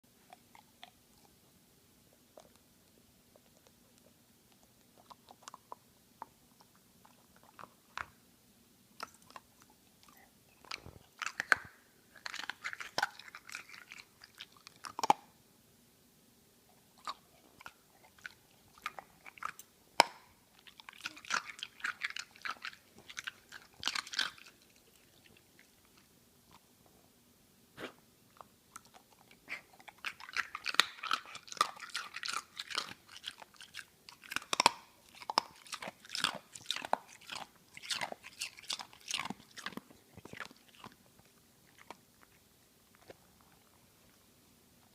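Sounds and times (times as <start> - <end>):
dog crunching ice cube: 10.7 - 15.2, 29.9 - 41.0.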